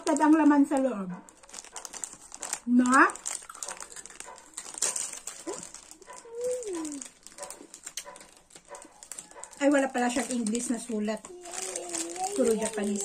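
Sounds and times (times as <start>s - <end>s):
snack packet rustling: 0.0s - 13.0s
chewing crisp rice cracker: 1.3s - 9.7s.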